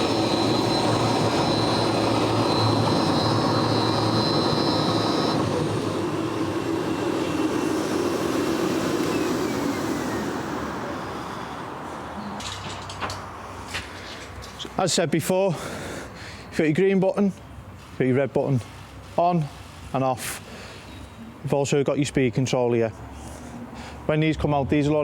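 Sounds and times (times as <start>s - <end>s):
concrete floor grinder running: 0.0s - 11.6s
high whine: 0.0s - 12.0s
dust extraction vacuum: 0.0s - 12.1s.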